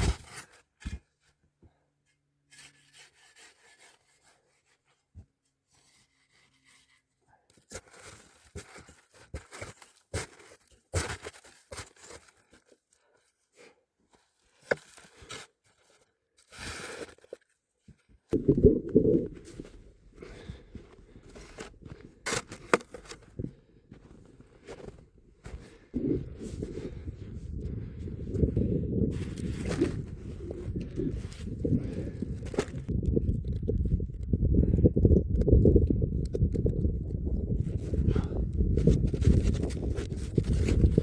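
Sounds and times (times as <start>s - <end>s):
wind buffeting microphone: 18.4s - 20.6s, 26.0s - 41.0s.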